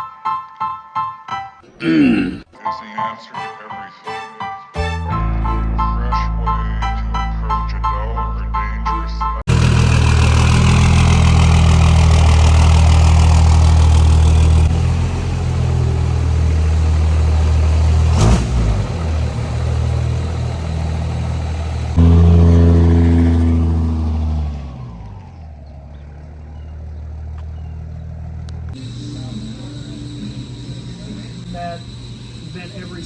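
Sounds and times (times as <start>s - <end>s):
diesel engine revving: 9.1s - 33.0s.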